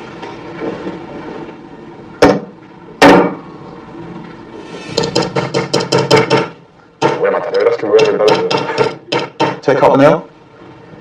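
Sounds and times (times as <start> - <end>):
sharp knocks: 2.2 - 3.4, 4.9 - 7.3, 7.9 - 9.7.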